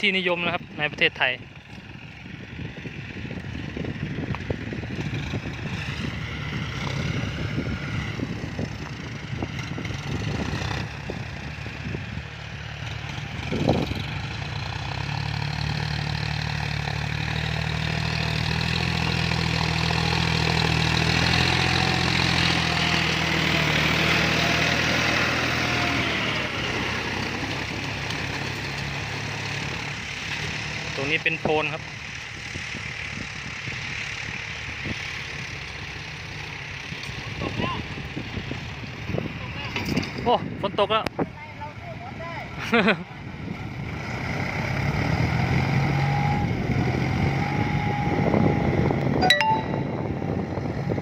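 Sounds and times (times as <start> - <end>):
tractor engine under load: 0.1 - 40.6.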